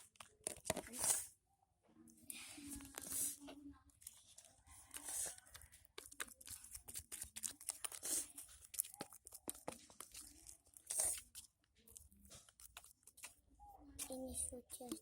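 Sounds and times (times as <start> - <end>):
slime sticky crackles and pops: 4.9 - 13.4.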